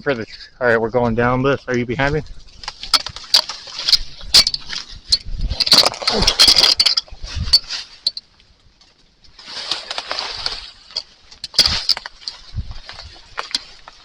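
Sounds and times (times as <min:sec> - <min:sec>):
footsteps crunching dry leaves: 0:09.3 - 0:14.0.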